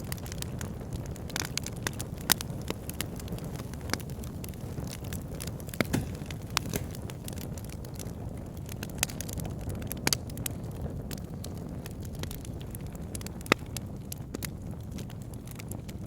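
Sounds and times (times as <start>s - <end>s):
burning logs crackling and popping: 0.0s - 16.0s
flames rumbling: 0.0s - 16.0s.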